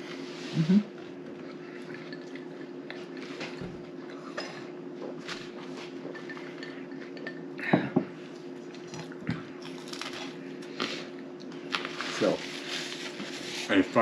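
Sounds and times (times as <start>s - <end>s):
steady low hum: 0.0s - 14.0s
plates and cutlery clinking: 1.8s - 8.1s.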